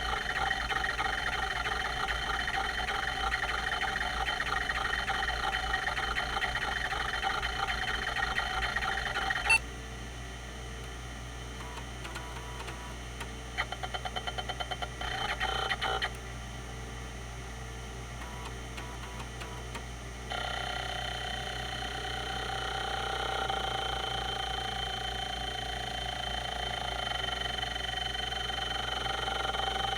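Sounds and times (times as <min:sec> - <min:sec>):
hard drive humming: 0:00.0 - 0:09.8, 0:10.8 - 0:29.9
hard drive seeking squeak: 0:00.2 - 0:09.6.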